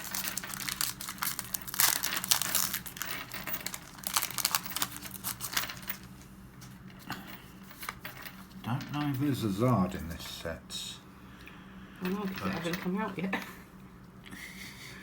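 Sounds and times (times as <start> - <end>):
cards being handled: 0.0 - 5.9
plastic wrappers crinkling: 0.0 - 6.2.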